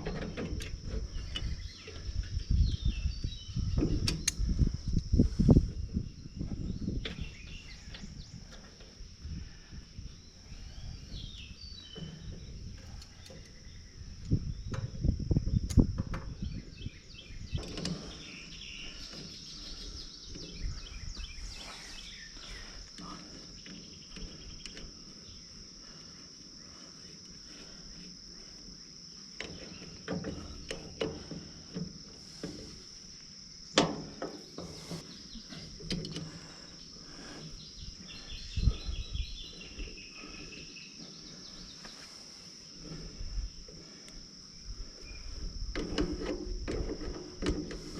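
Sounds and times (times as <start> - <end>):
insect chorus trilling: 0.0 - 47.9
knocks and clanks of hand work: 33.8 - 35.0.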